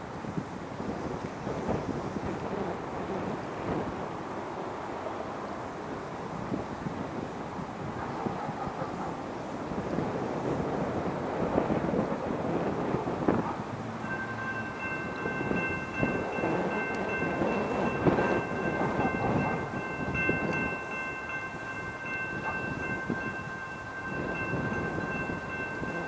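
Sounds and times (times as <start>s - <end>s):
passing train rumble: 0.0s - 26.0s
crossing bell ringing: 12.8s - 26.0s.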